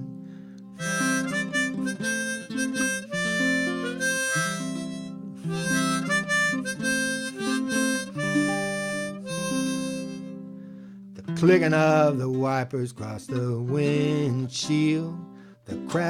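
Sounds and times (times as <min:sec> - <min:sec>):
harmonica melody: 0:00.7 - 0:10.8
ukulele accompaniment: 0:00.8 - 0:10.3.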